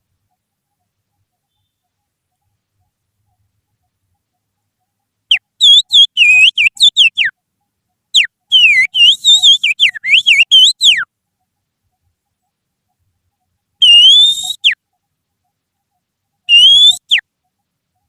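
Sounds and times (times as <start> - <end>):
finger whistle imitating birdsong: 5.3 - 7.3, 8.2 - 11.1, 13.8 - 14.8, 16.5 - 17.2.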